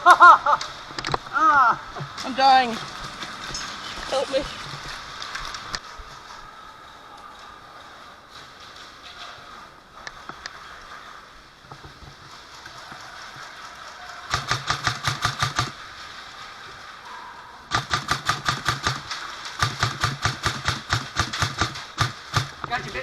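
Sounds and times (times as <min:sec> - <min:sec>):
airsoft rifle full-auto bursts: 0:14.3 - 0:15.8, 0:17.7 - 0:23.0.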